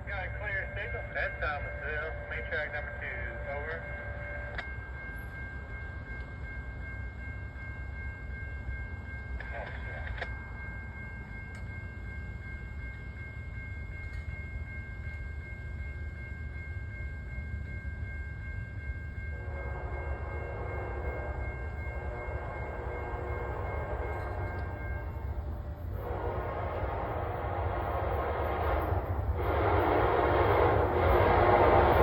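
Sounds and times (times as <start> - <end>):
train rumble: 0.0 - 32.0
train air horn blast: 19.4 - 25.4, 26.0 - 32.0.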